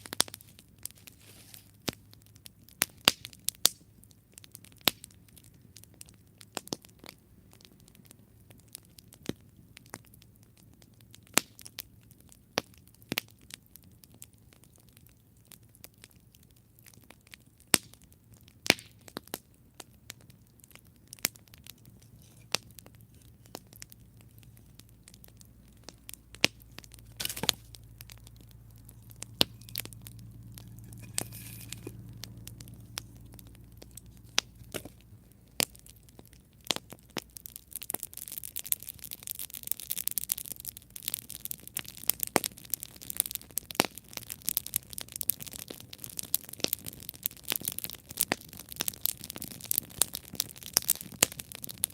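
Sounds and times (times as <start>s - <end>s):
campfire crackling: 0.0s - 51.9s
wood popping: 20.6s - 45.5s
low rumble: 26.1s - 36.1s.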